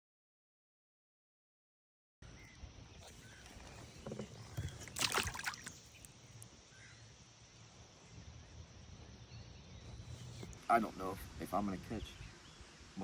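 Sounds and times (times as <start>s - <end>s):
outdoor background noise: 2.2s - 13.0s
water splashing around kayak: 3.0s - 6.2s.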